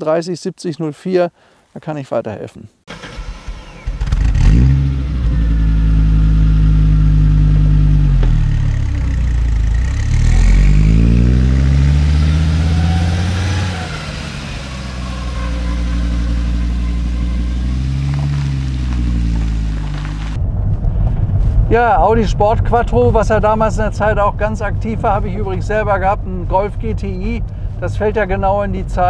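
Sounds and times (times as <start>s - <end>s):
car engine accelerating: 2.9s - 28.3s.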